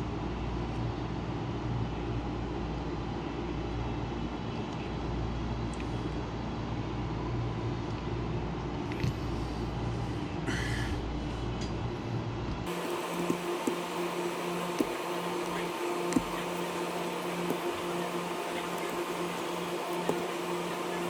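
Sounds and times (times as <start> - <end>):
mechanical drone with low rumble: 0.0 - 21.0
thin steady hum: 9.2 - 21.0.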